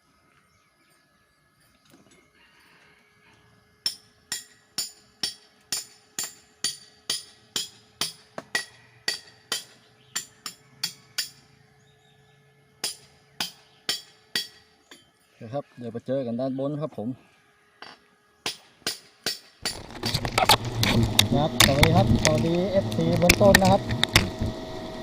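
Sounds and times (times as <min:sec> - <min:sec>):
hammer blows on pegs: 0:03.8 - 0:11.4, 0:12.8 - 0:15.1
faint steady hum: 0:19.6 - 0:25.0.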